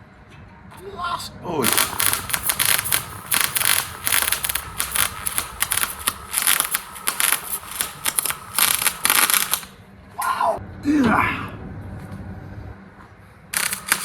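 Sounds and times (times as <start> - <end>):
welding arc crackling: 1.6 - 9.8, 13.5 - 14.0.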